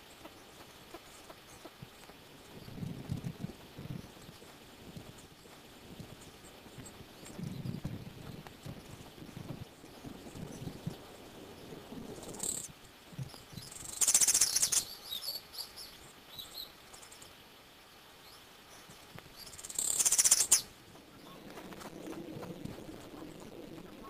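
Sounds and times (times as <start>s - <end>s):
high-pitched trilled bird calls: 12.2s - 17.3s, 19.3s - 21.4s.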